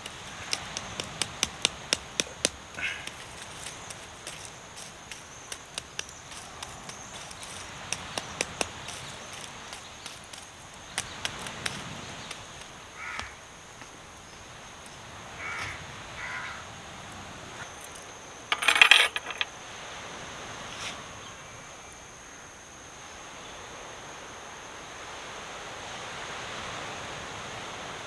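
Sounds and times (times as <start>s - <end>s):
steady outdoor hiss: 0.0s - 28.0s
crow cawing: 13.0s - 13.4s, 15.4s - 16.6s
dense clatter of knocks: 18.5s - 19.5s.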